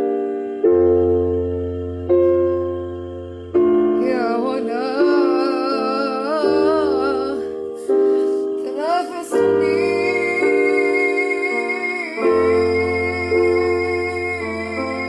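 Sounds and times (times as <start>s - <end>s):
piano chords: 0.0s - 15.0s
woman singing: 4.0s - 15.0s.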